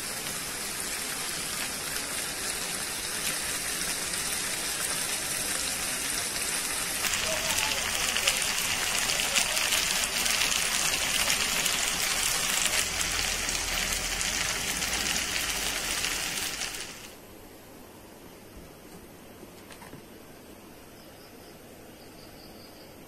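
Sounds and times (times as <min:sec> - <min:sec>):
food sizzling in a wok: 0:00.0 - 0:17.2
faint hiss: 0:00.0 - 0:23.0.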